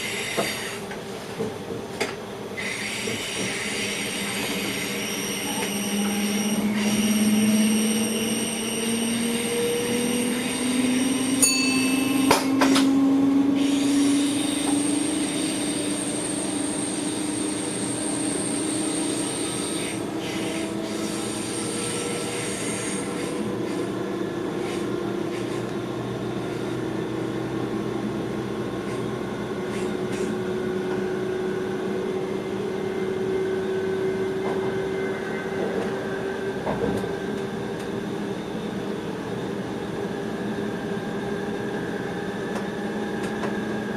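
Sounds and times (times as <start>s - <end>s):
electric train traction whine: 2.6s - 24.6s.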